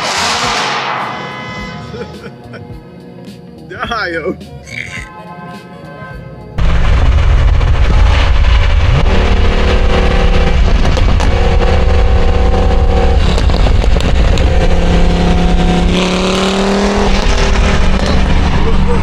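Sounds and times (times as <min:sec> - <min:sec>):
car engine rumbling: 0:06.5 - 0:19.0.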